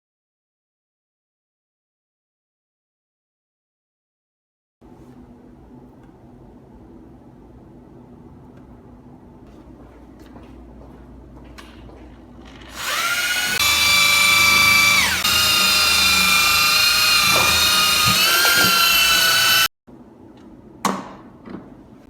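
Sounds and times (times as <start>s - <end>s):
electric drill motor whine: 12.7s - 19.7s.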